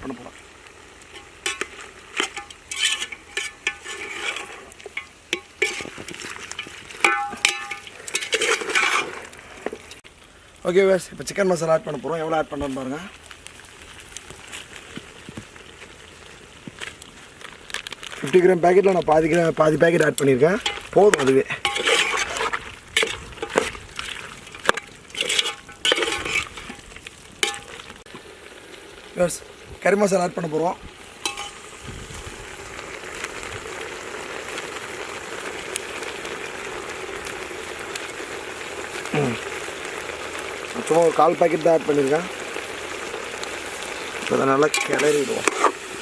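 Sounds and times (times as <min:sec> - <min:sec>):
light sizzling: 0:00.0 - 0:46.0
spoon scraping and knocking pan: 0:01.1 - 0:09.8, 0:20.6 - 0:26.8, 0:27.4 - 0:27.8, 0:31.2 - 0:31.6, 0:44.7 - 0:45.8.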